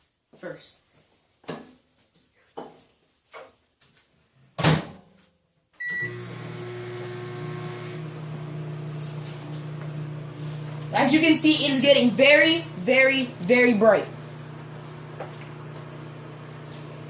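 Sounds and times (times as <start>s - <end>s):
short beep: 5.8s - 6.2s
microwave oven humming: 5.8s - 17.0s.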